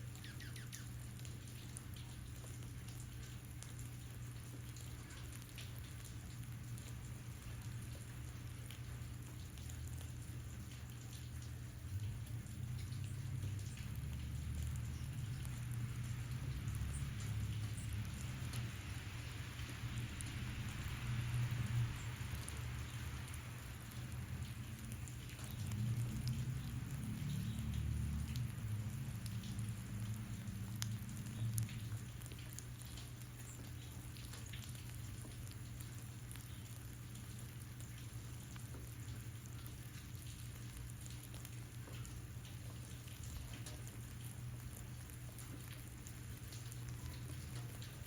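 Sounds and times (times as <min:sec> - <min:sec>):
rain-like hiss: 0:00.0 - 0:48.0.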